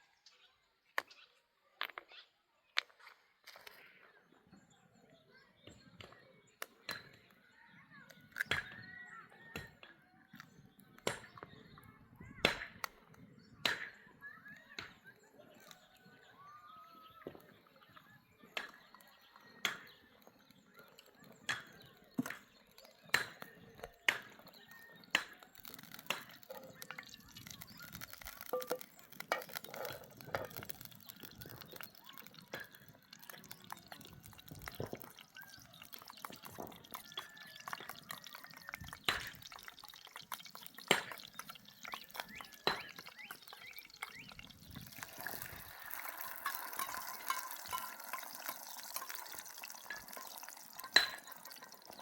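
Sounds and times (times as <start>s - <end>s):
water dripping and splashing: 18.5s - 52.0s.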